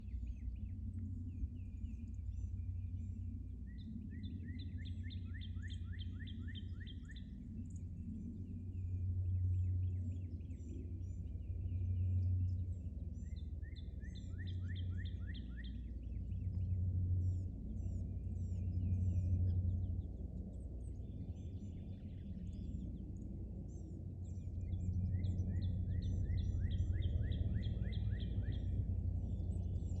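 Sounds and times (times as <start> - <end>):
songbird trilling: 25.0 - 30.0.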